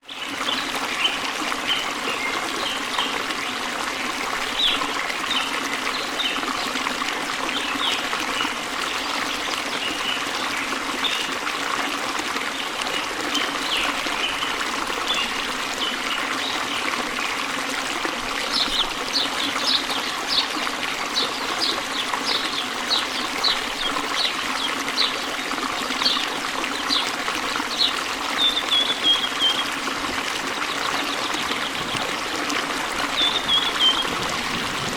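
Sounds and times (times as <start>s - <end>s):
water trickling: 0.0s - 34.9s
birds chirping: 27.7s - 29.9s, 30.7s - 34.9s.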